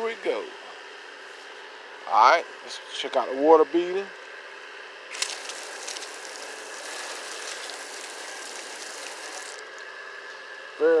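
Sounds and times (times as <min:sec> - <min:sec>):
water spraying onto car: 0:05.1 - 0:09.8.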